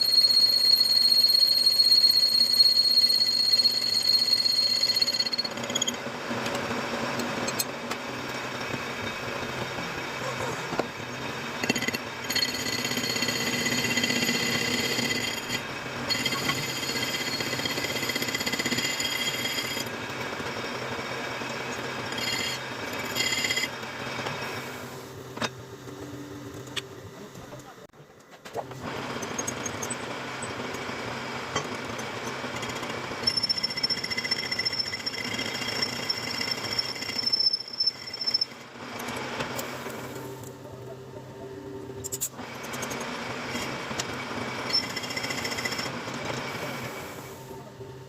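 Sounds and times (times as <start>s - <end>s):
high-pitched tool ringing: 0.0s - 6.0s, 11.6s - 19.9s, 22.1s - 23.8s, 32.7s - 38.6s, 44.7s - 45.9s
metal lathe cutting steel: 0.0s - 6.1s, 10.8s - 24.2s, 28.9s - 39.6s, 42.4s - 47.1s.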